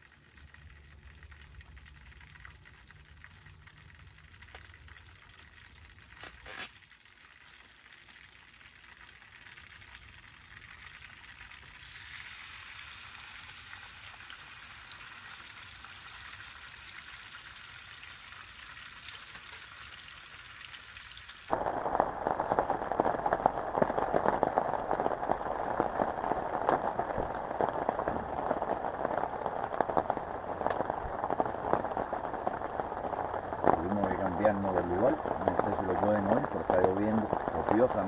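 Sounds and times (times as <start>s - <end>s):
dense patter of raindrops: 0.0s - 11.8s, 16.9s - 38.0s
heavy rain hissing: 21.5s - 38.0s.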